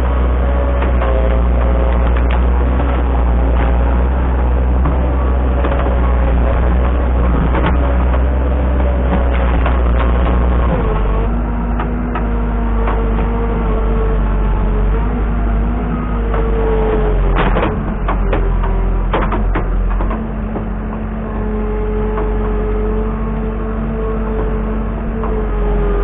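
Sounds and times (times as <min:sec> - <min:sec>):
engine running under load: 0:00.0 - 0:26.0
clicks and knocks: 0:00.7 - 0:11.1, 0:17.3 - 0:21.1.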